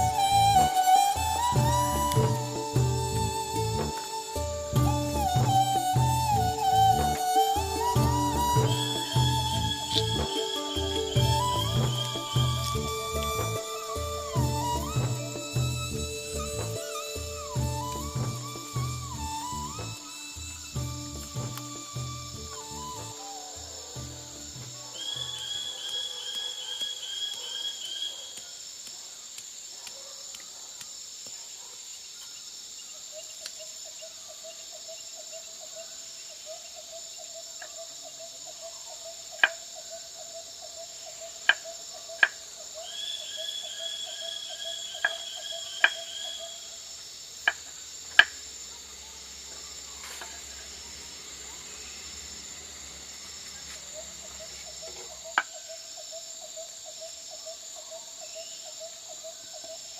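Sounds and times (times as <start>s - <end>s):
low pulsing trill: 0.0s - 25.4s
quick repeated high calls: 0.0s - 28.5s
high-pitched insect chorus: 0.0s - 59.9s.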